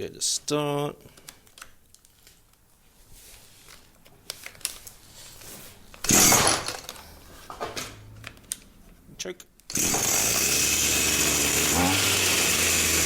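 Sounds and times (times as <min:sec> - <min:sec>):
recoil starter cord pull: 0:09.7 - 0:13.0.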